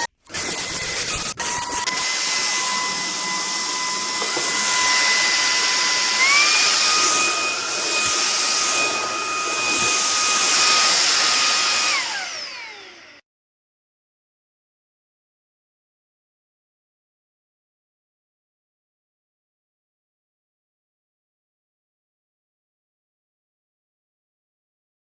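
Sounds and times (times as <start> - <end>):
stick vacuum cleaner whining: 0.0 - 13.2.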